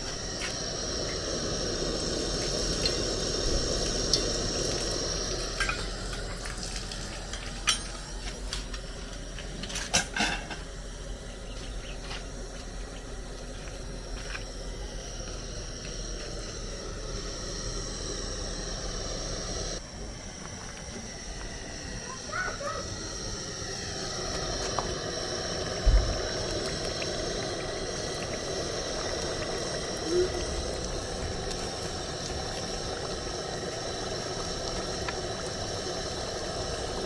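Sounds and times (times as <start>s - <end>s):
oil frying with sizzling hiss: 0.0s - 37.0s.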